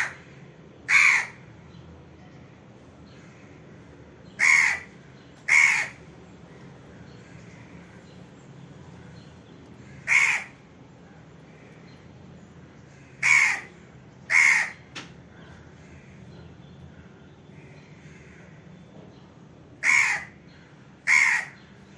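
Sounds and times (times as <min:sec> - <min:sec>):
crow cawing: 0:00.0 - 0:00.2, 0:00.9 - 0:01.4, 0:04.4 - 0:04.9, 0:05.5 - 0:06.0, 0:09.8 - 0:10.7, 0:12.9 - 0:14.9, 0:17.6 - 0:18.6, 0:19.8 - 0:20.4, 0:21.0 - 0:21.6.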